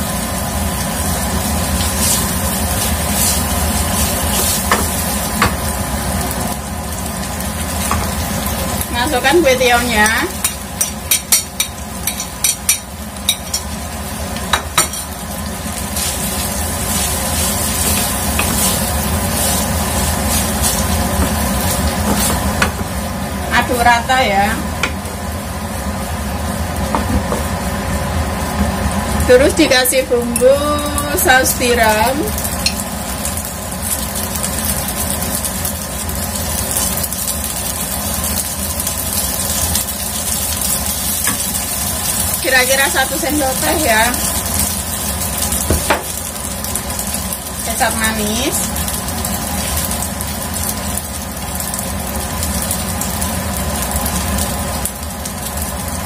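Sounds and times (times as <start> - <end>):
steady low hum: 0.0 - 34.8
noodles sizzling in pan: 0.0 - 56.0.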